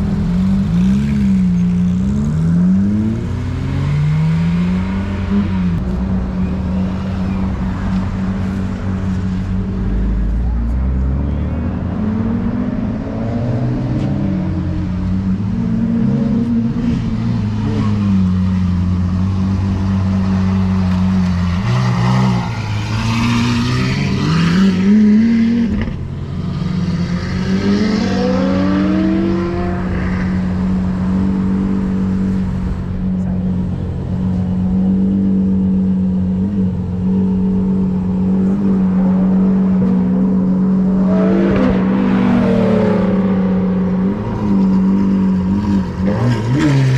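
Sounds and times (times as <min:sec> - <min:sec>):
car engine revving: 0:00.0 - 0:46.9.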